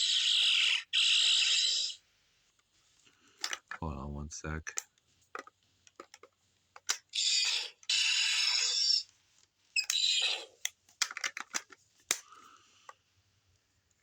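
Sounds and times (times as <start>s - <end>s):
plastic toy parts scraping: 3.1s - 3.8s, 5.3s - 9.1s, 9.8s - 13.0s
sharp plastic clicks: 4.7s - 8.8s, 9.8s - 13.0s.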